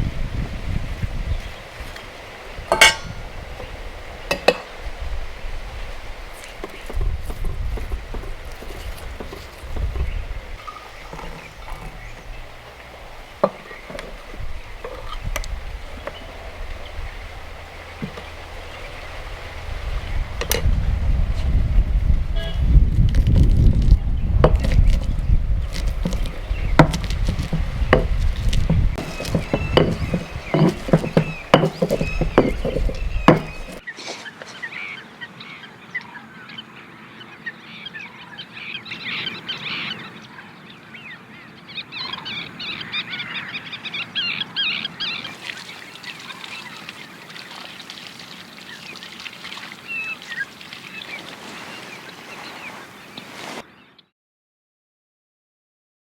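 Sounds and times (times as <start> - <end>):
chopping knocks: 2.7 - 3.3, 24.4 - 33.8
birds chirping and calling: 6.4 - 20.9, 21.7 - 47.0.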